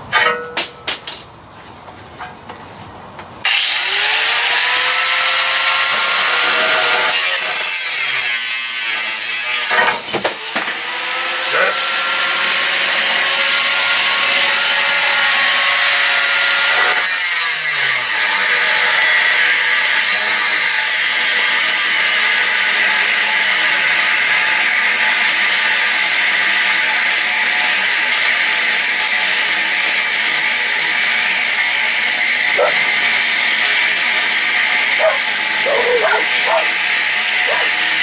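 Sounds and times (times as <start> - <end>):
power tool hissing on steel: 17.9 - 38.0.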